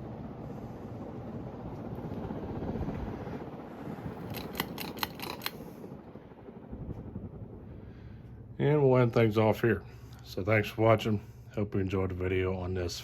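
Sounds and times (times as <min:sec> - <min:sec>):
ceiling fan running: 0:00.0 - 0:13.0
fan sharp clicks: 0:01.6 - 0:02.3, 0:04.1 - 0:05.8.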